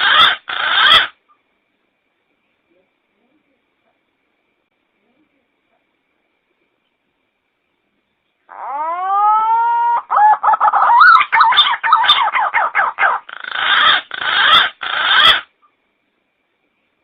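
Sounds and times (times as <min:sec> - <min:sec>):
pigeon calling: 0:00.0 - 0:01.2, 0:08.5 - 0:15.5.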